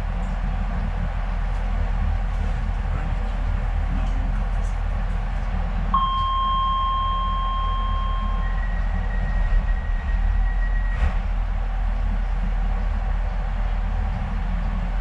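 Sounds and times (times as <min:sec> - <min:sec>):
train hum: 0:00.0 - 0:15.0
door warning tones: 0:06.0 - 0:11.0.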